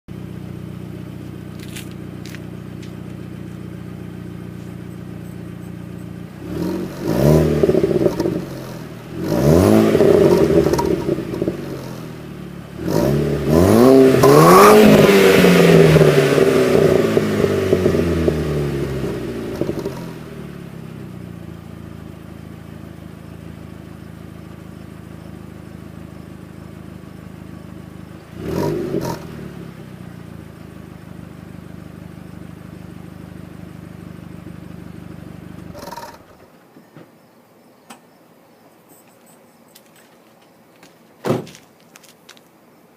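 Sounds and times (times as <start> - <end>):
car engine idling and revving: 0.1 - 36.6
screeching: 35.7 - 36.4.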